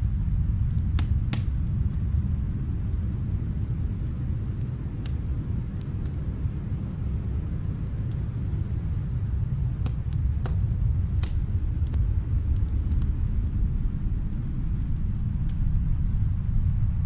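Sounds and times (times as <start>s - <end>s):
log fire crackling and popping: 0.0s - 17.0s
low rumble of storm wind: 0.0s - 17.0s.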